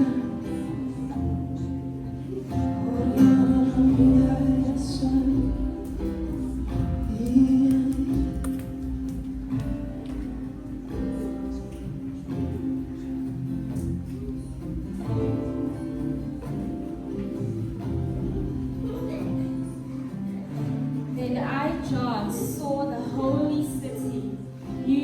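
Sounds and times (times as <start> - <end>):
person singing: 0.0 - 9.8, 10.9 - 20.4
acoustic guitar strumming: 0.0 - 25.0.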